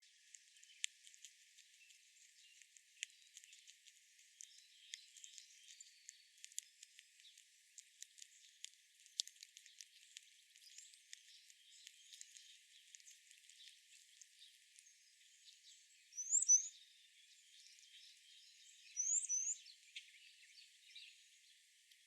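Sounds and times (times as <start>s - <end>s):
small irregular clicks and ticks: 0.0s - 22.0s
faint high chirps: 1.6s - 21.6s.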